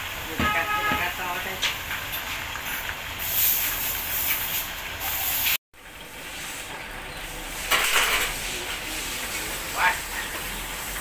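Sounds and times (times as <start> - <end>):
water boiling in a pan: 0.0 - 5.4
chicken deep-frying in oil: 0.0 - 11.0.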